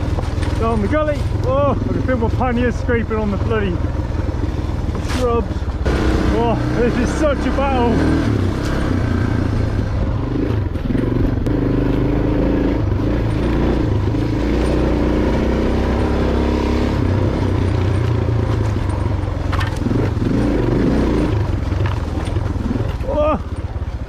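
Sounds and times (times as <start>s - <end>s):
motorcycle engine at low revs: 0.0s - 24.0s
brush scraping against panniers: 4.9s - 5.4s.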